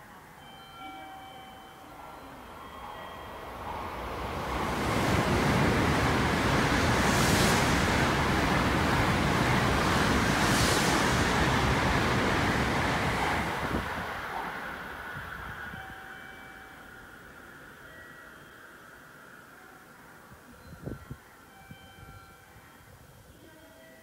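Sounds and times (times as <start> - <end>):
train rushing past: 2.2 - 19.6
high hissing: 3.8 - 14.0.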